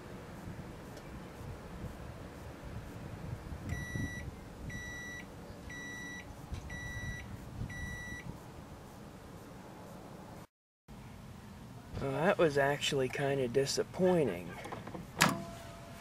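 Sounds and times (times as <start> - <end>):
microwave oven beeping: 3.7 - 8.3.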